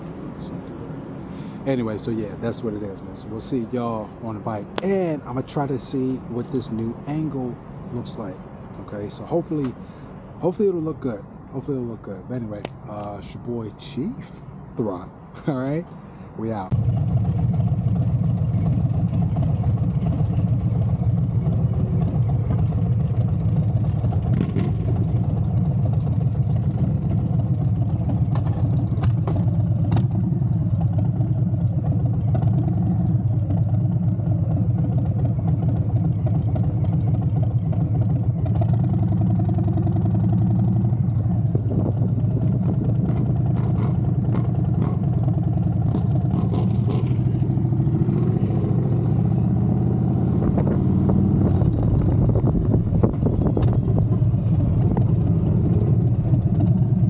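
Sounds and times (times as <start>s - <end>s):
motorcycle engine droning: 16.7s - 57.0s.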